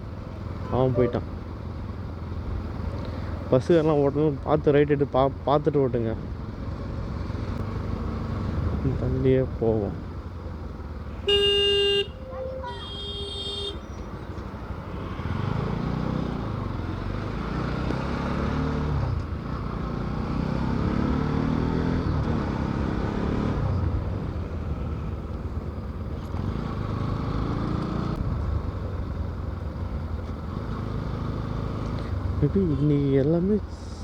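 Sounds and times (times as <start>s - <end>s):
wind and road noise: 0.0s - 34.0s
motorcycle engine accelerating: 6.2s - 12.1s, 12.9s - 32.7s.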